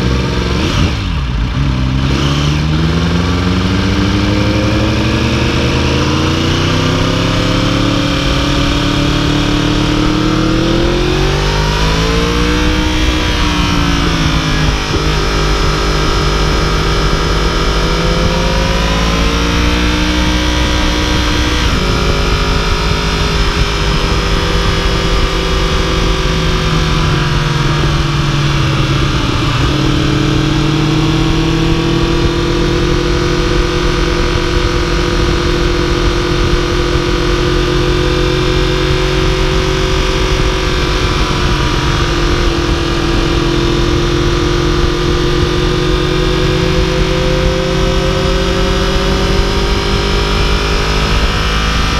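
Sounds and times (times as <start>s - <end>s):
motorcycle engine running: 0.0s - 51.9s
wind rush: 0.4s - 51.9s.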